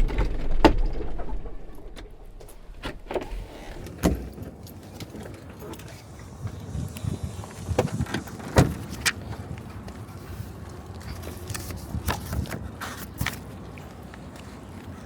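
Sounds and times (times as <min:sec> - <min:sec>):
low rumble: 0:00.0 - 0:04.0.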